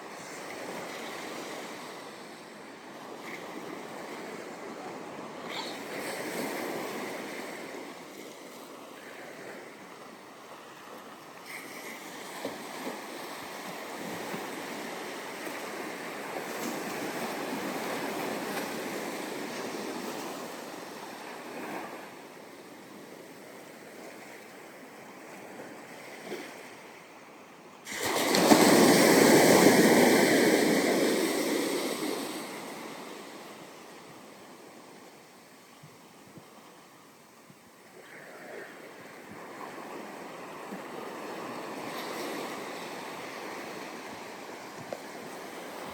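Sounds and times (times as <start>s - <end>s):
ocean surf on sand: 0.0s - 45.9s
loud wave breaking close by: 27.9s - 33.3s.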